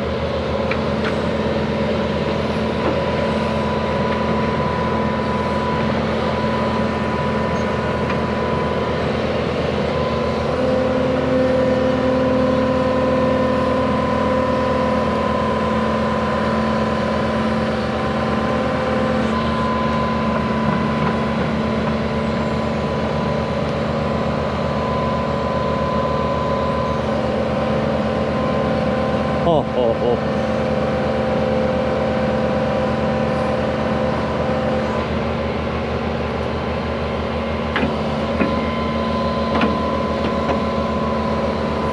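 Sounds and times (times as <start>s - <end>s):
heavy equipment engine under load: 0.0s - 41.9s
steady machine whine: 0.0s - 41.9s.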